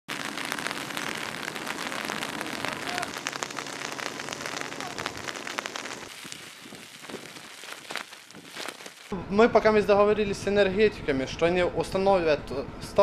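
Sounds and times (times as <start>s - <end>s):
raindrops clicking: 1.2s - 9.1s.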